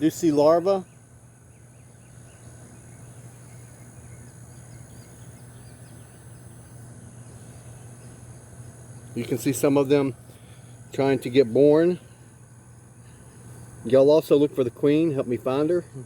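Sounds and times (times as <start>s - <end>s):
cricket chorus: 0.0s - 16.0s
low steady hum: 0.0s - 16.0s
small bird chirps: 0.8s - 9.2s.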